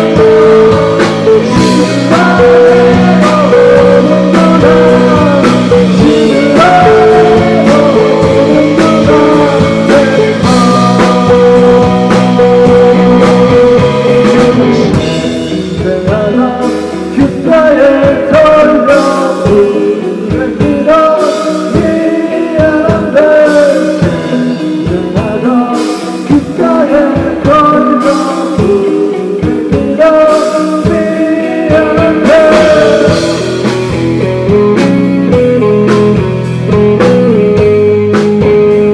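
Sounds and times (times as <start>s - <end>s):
bass guitar: 0.0s - 38.9s
drums: 0.0s - 38.9s
electric guitar: 0.0s - 38.9s
person singing lead vocal: 0.0s - 38.9s.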